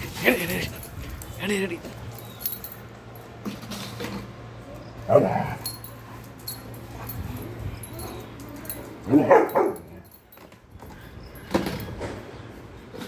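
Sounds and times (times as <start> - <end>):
dog barking: 9.1 - 10.0.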